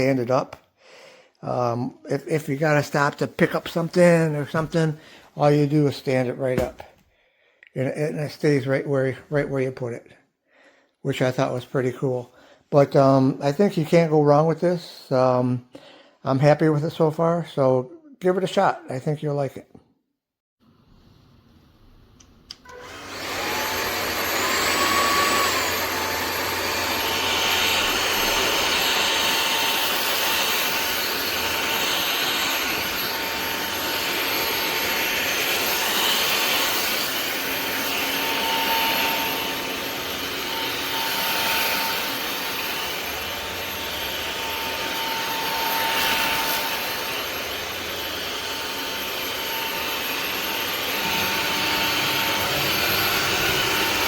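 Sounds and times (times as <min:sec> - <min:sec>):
vacuum motor whine: 0:22.6 - 0:54.0.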